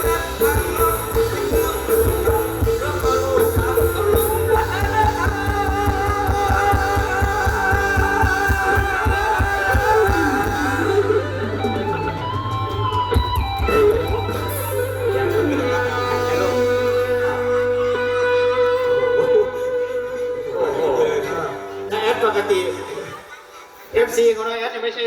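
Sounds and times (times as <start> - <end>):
steady drum beat: 0.0 - 17.2
rock band music with singing: 0.0 - 24.3.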